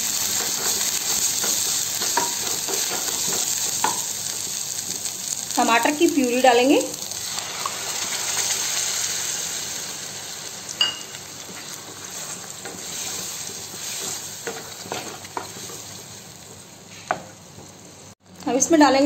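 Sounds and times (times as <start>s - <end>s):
tomato puree sizzling: 0.0s - 18.8s.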